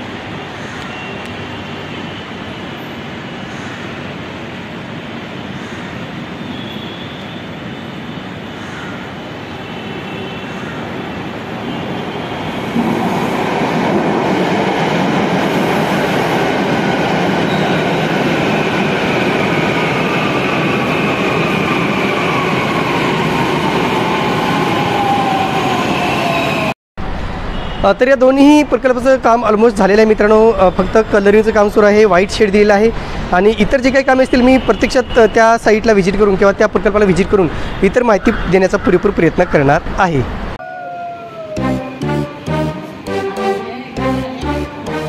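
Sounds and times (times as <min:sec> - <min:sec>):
metro train running: 0:00.0 - 0:26.7, 0:40.6 - 0:45.0
train whine falling in pitch: 0:40.6 - 0:45.0.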